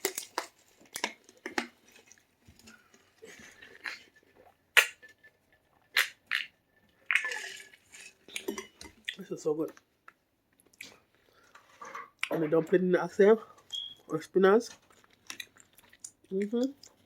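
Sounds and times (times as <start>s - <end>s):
quiet chewing: 7.3s - 12.4s, 14.7s - 17.0s.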